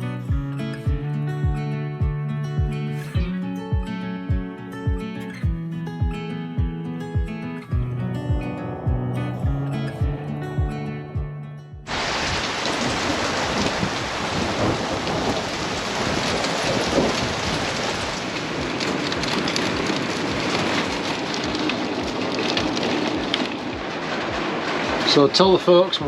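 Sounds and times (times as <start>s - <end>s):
heavy rain pouring: 11.9s - 26.0s.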